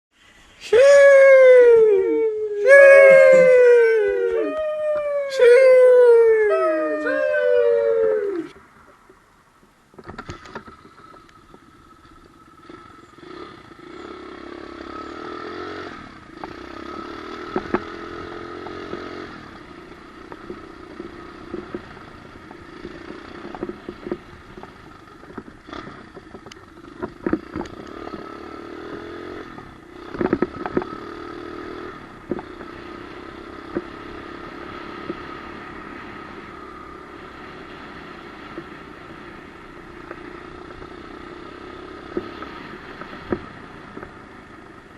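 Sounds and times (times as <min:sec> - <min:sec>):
pit bike engine revving: 0:12.5 - 0:21.9.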